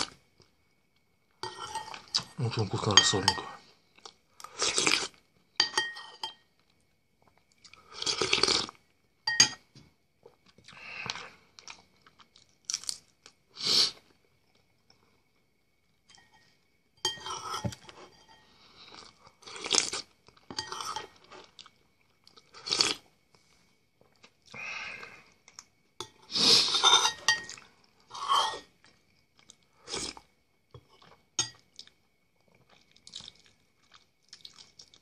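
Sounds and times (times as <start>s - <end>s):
man chewing and crunching food: 0.0s - 35.0s.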